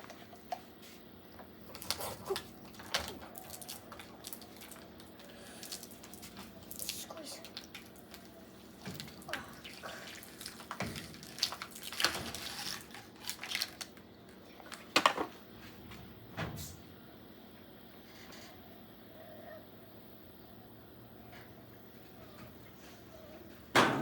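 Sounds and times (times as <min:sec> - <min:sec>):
water dripping and splashing: 0:01.8 - 0:14.0.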